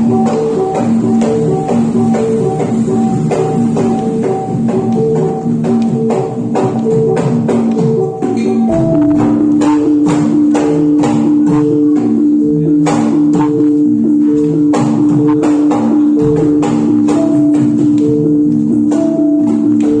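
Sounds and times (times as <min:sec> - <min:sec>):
percussion beat: 0:00.0 - 0:20.0
repeating pitched notes: 0:00.0 - 0:20.0
long held low tone: 0:08.6 - 0:10.9.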